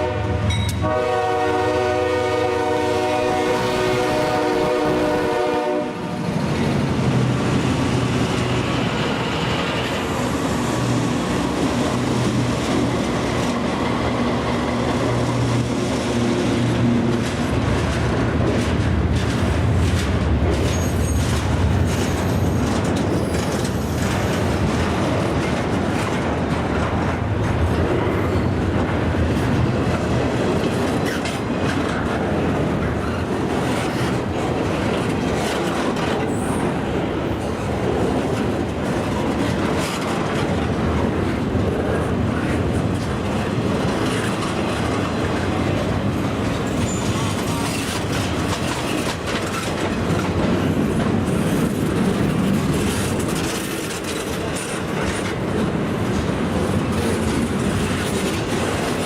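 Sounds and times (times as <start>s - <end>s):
freight train wheels clicking: 2.6s - 59.0s
faint high wheel squeals: 20.6s - 21.4s.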